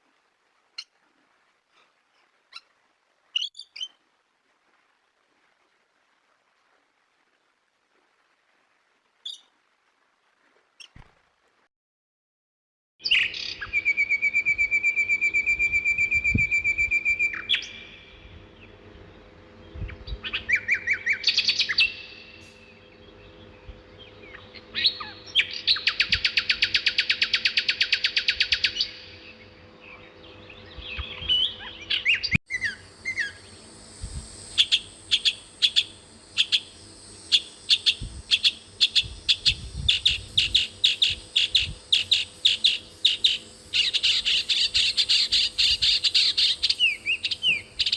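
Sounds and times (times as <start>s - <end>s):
bird trilling: 13.0s - 18.8s, 19.6s - 33.6s, 34.4s - 47.9s
bird chirps: 13.0s - 47.9s.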